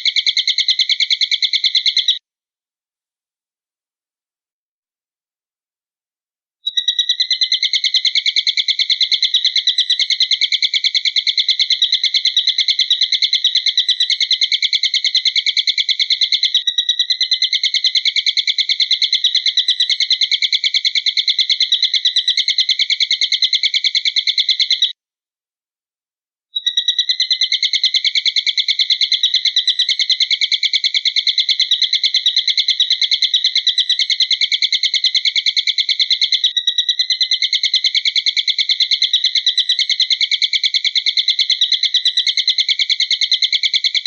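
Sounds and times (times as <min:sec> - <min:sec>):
high rapid pulsing bird trill: 0:26.6 - 0:30.3.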